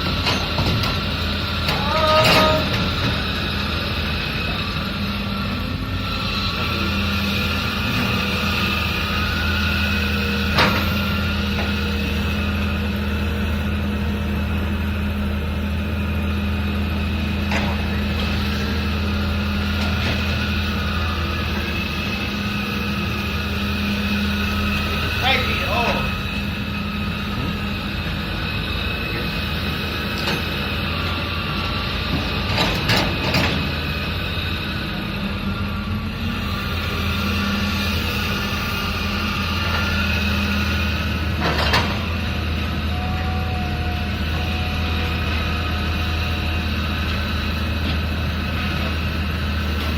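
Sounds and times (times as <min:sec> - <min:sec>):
diesel engine droning: 0:00.0 - 0:49.9.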